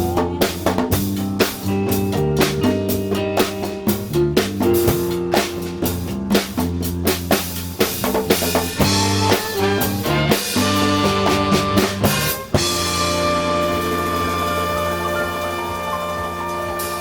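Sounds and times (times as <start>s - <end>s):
band playing live: 0.0s - 17.0s
drum kit strokes: 0.0s - 17.0s
held keyboard chord: 8.8s - 17.0s.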